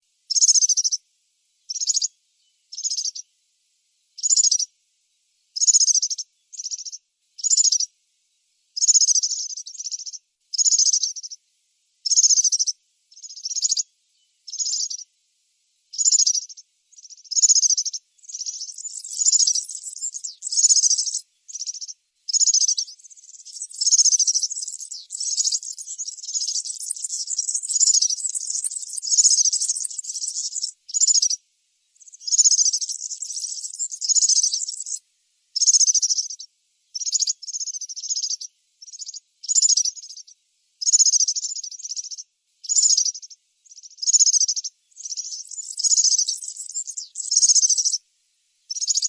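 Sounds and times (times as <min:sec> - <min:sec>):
bird singing high-pitched phrases: 0:01.7 - 0:02.1, 0:02.7 - 0:03.2, 0:04.2 - 0:04.7, 0:05.6 - 0:07.9, 0:14.5 - 0:15.1, 0:16.0 - 0:31.4, 0:32.0 - 0:35.0, 0:35.6 - 0:48.0, 0:48.7 - 0:49.0.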